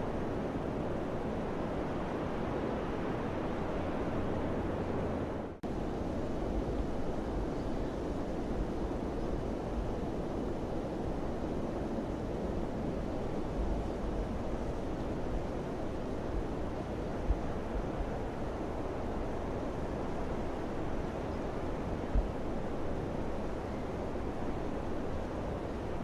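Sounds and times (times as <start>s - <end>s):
rushing wind: 0.0s - 26.0s.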